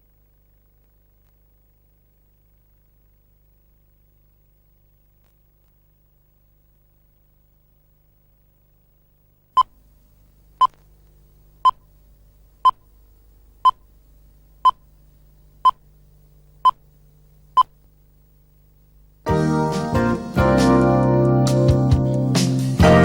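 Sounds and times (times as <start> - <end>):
faint steady hum: 0.0 - 22.4.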